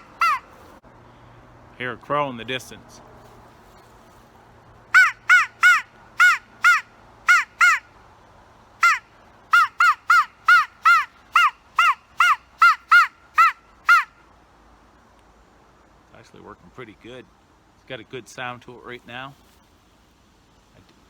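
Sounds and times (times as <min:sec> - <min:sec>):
crow call caws: 0:00.0 - 0:00.5, 0:05.0 - 0:07.9.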